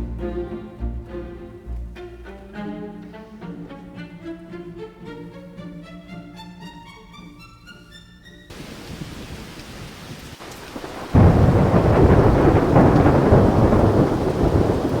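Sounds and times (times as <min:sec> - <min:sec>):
rain falling: 0:08.5 - 0:15.0
thunder rumbling: 0:08.6 - 0:15.0.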